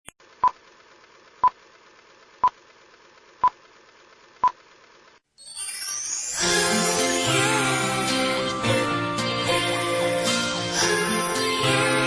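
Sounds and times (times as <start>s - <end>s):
music with rising sweep: 5.4s - 12.0s.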